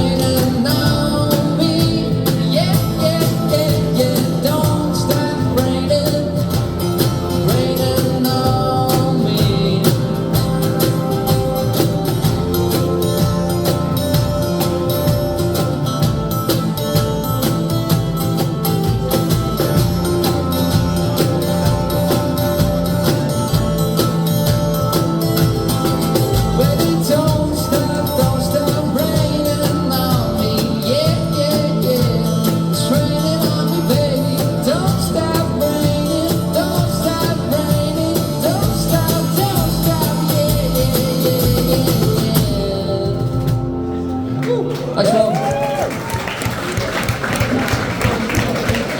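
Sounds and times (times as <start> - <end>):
person singing lead vocal: 0.0 - 12.4, 26.2 - 45.3
live rock band playing: 0.0 - 48.9.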